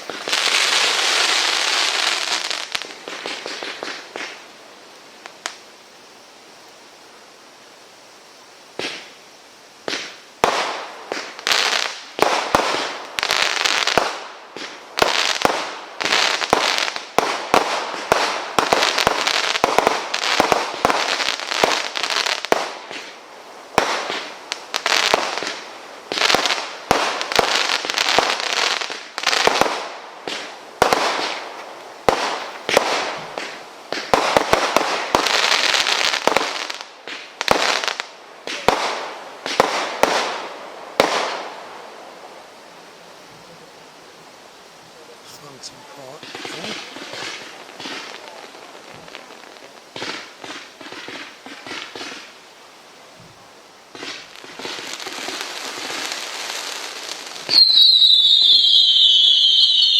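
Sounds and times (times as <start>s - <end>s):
firework hissing and crackling: 0.0s - 59.9s
firework sharp bangs: 8.8s - 9.2s, 9.8s - 41.8s, 46.1s - 52.4s, 53.9s - 59.9s.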